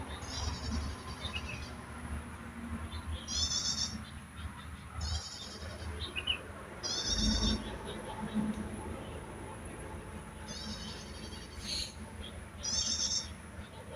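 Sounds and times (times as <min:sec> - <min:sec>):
songbird buzzy call: 0:03.3 - 0:04.0, 0:06.8 - 0:07.7, 0:12.6 - 0:13.4.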